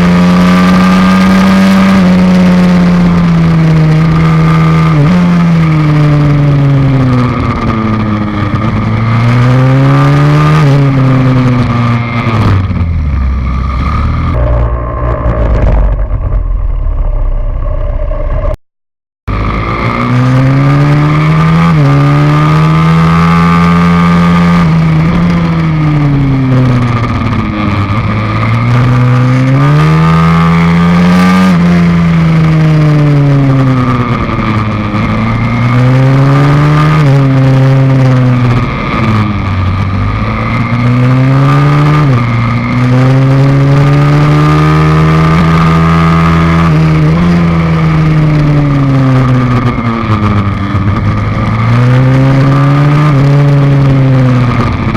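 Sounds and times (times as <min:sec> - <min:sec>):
pit bike engine revving: 0:19.3 - 0:54.9.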